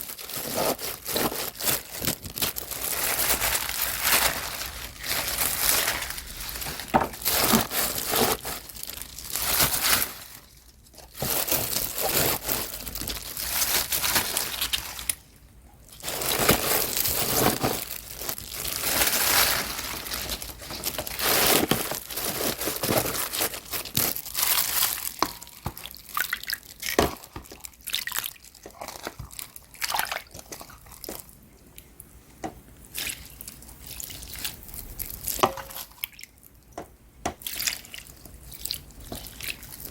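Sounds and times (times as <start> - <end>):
crinkling of wet leaves: 0.0 - 15.3, 15.9 - 26.9.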